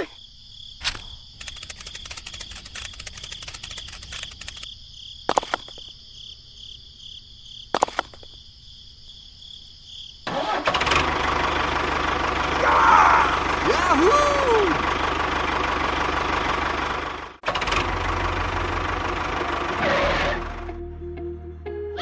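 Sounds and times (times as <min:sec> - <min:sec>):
rapid ticking: 0:00.8 - 0:04.7
sharp clicks: 0:00.8 - 0:04.7, 0:05.3 - 0:05.9, 0:07.8 - 0:08.4
low engine running: 0:10.7 - 0:20.8.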